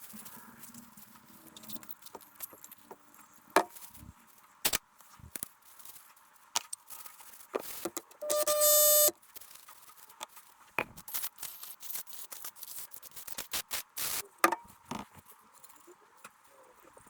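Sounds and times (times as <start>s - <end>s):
electronic beep: 8.2s - 9.1s.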